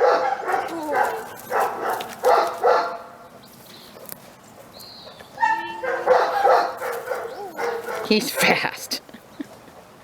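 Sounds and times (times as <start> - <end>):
dog barking: 0.0 - 3.1, 5.4 - 8.6
dog high-pitched vocal: 0.5 - 1.4, 5.4 - 8.6.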